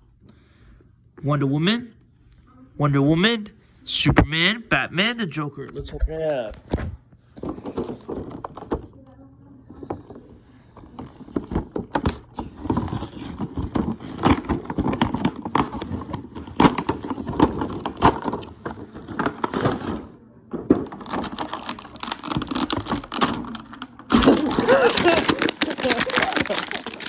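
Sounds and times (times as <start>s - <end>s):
cardboard and plastic crinkling: 6.6s - 8.9s, 9.8s - 27.0s.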